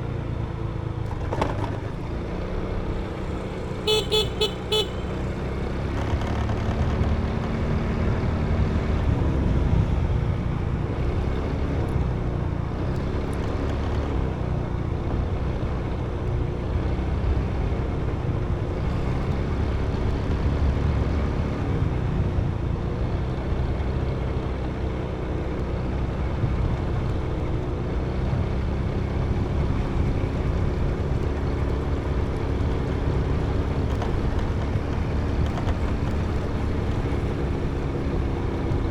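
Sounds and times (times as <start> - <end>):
wind and road rumble: 0.0 - 38.9
motorbike engine running: 0.1 - 9.2, 25.8 - 38.9.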